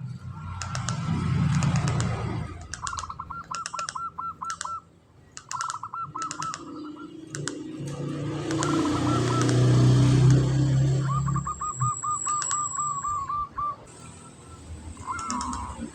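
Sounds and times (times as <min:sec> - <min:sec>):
sharp high chirps: 0:05.5 - 0:07.6, 0:10.8 - 0:15.9
dove rattling coo: 0:08.3 - 0:13.8.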